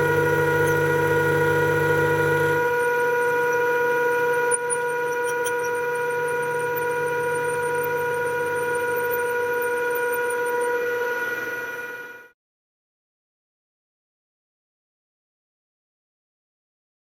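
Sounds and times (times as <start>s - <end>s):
milling machine cutting steel: 0.0s - 12.2s.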